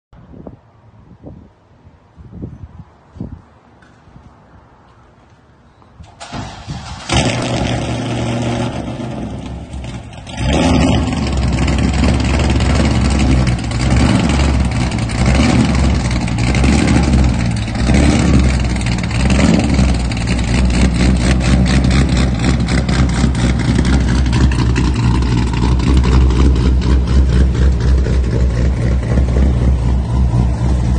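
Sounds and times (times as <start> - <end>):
car engine starting and revving: 6.0 - 30.9
loud choppy engine idle: 10.2 - 27.8.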